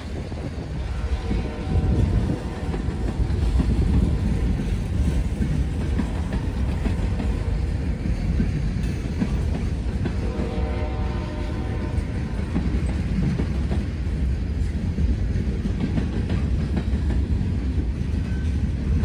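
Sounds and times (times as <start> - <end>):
wheels clattering over rail joints: 0.0 - 10.6
freight train rumbling past: 0.0 - 19.0.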